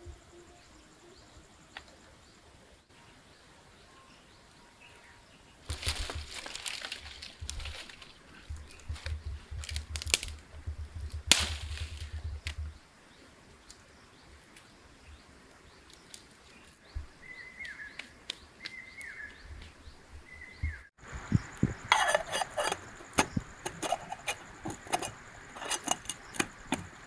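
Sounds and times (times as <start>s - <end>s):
bird chirping: 11.9s - 27.0s
scattered clicks and knocks: 21.6s - 27.0s.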